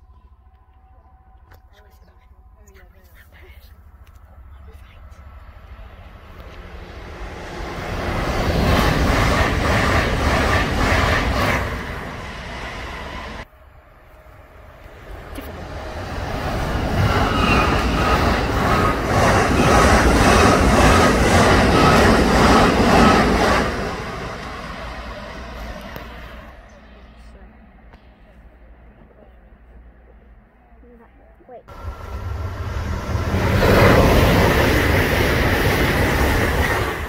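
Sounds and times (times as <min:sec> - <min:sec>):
train wheels rushing on rails: 0:05.5 - 0:27.2, 0:31.7 - 0:37.0.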